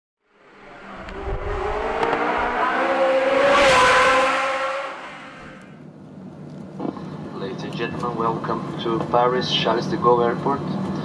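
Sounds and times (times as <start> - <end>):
car passing at high revs: 0.3 - 5.8.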